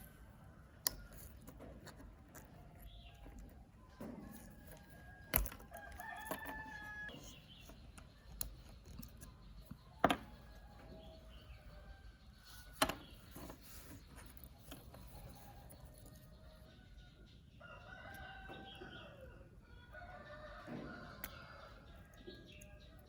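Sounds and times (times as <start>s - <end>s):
rooster crowing: 5.7s - 7.1s.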